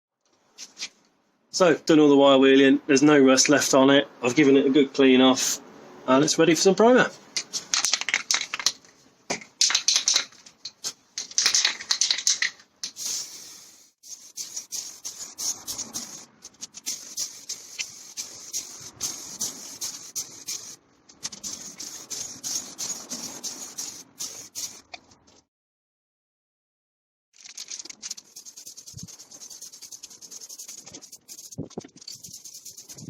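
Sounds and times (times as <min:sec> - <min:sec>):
mixing ball rattling in can: 0:07.4 - 0:08.8, 0:09.4 - 0:13.0, 0:27.4 - 0:33.0
aerosol spray hissing: 0:12.9 - 0:24.8, 0:28.3 - 0:33.0.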